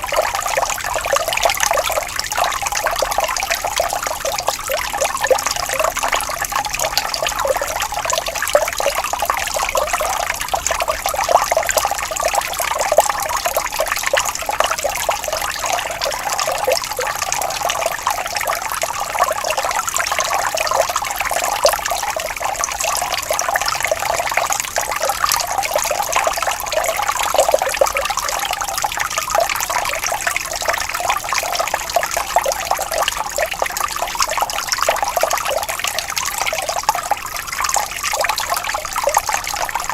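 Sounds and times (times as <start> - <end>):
water flowing and trickling: 0.0 - 39.9.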